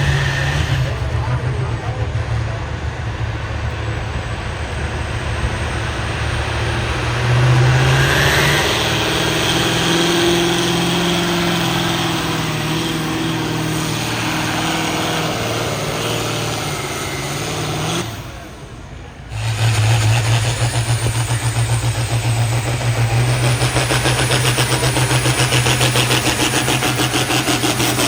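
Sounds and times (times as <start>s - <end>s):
pulling vehicle engine revving: 0.0s - 28.0s.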